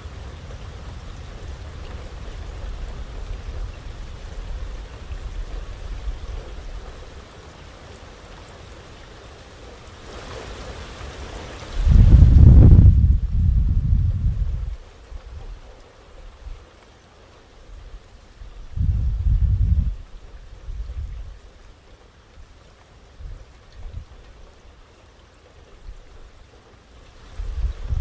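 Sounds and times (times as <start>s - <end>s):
heavy rain: 0.0s - 28.0s
low rumble: 11.8s - 15.4s.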